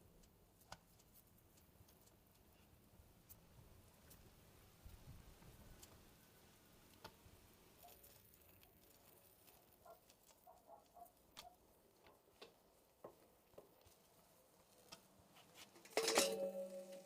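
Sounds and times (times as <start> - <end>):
steady ringing tones: 16.0 - 17.0.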